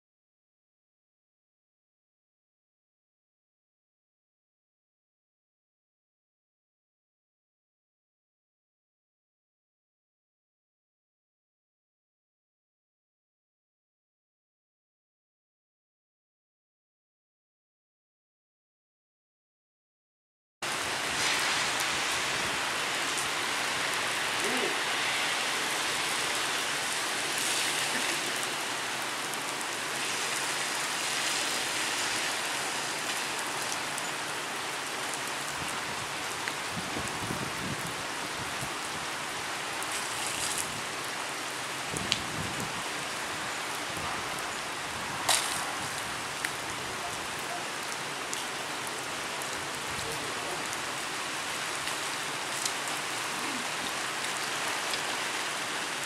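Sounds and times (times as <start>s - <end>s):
rain hiss: 20.6s - 56.0s.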